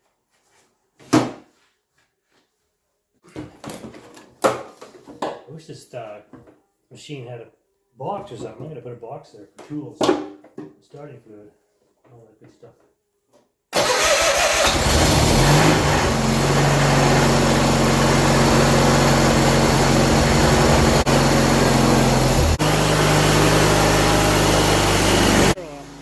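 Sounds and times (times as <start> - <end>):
tractor engine starting and running: 13.8 - 26.0.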